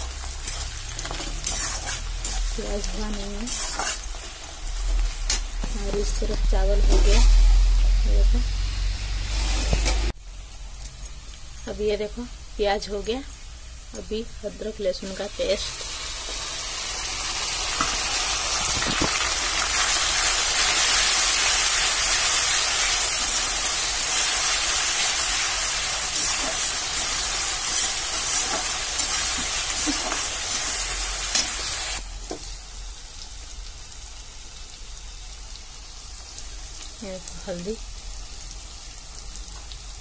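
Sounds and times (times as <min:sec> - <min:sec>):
metal spatula stirring: 0:00.0 - 0:07.3, 0:24.1 - 0:31.6
onions sizzling in hot oil: 0:00.0 - 0:40.0.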